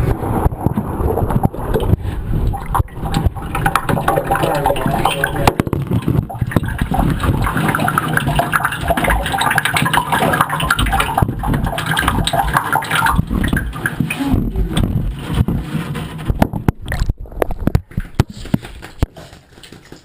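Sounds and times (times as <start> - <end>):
running splashing water: 0.9 - 16.3.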